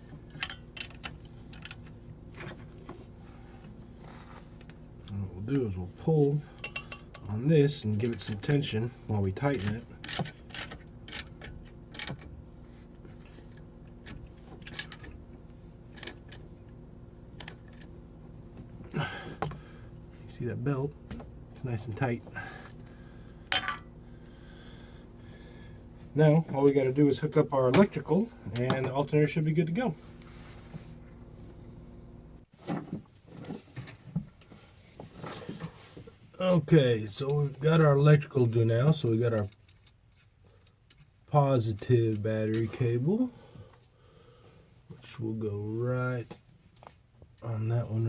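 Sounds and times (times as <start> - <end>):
low steady hum: 0.0 - 48.0
tools and parts clattering: 6.6 - 7.3, 23.5 - 23.9.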